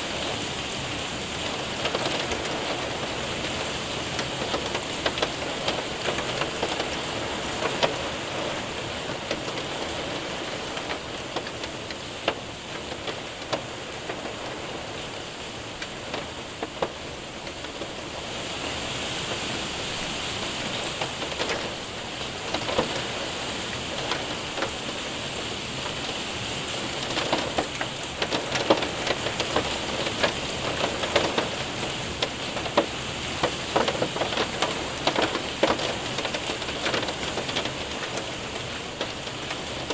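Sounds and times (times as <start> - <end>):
rain on window and roof: 0.0 - 39.9
hailstones striking: 20.7 - 25.0, 26.8 - 39.9.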